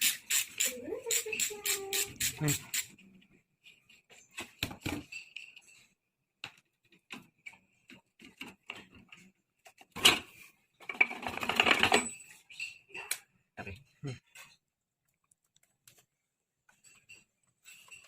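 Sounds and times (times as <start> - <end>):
metal parts and tools clinking: 4.1 - 6.0, 10.0 - 13.3, 16.7 - 18.0.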